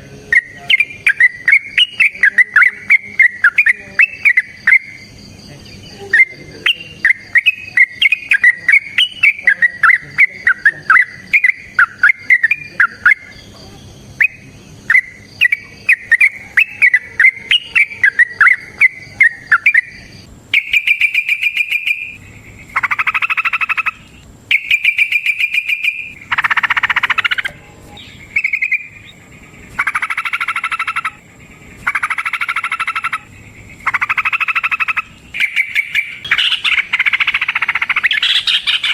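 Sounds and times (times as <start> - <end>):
bird chirping song: 0.0 - 38.9
harsh buzzing bird rattles: 20.6 - 38.9.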